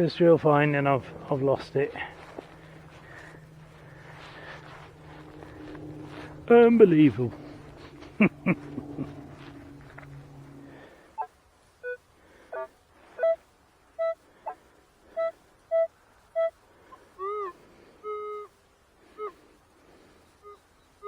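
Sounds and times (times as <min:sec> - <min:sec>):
metal detector beeps: 0:11.8 - 0:13.4.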